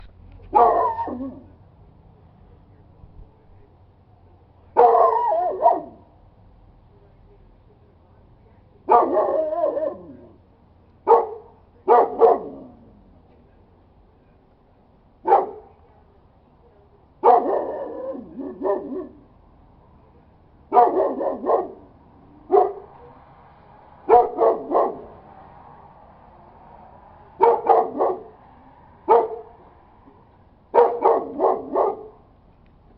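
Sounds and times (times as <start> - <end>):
dog barking: 0.5 - 1.5, 4.8 - 6.1, 8.9 - 10.4, 11.0 - 12.8, 15.2 - 15.8, 17.2 - 19.3, 20.7 - 21.9, 22.5 - 23.0, 24.1 - 25.3, 27.3 - 28.4, 29.0 - 29.7, 30.7 - 32.2.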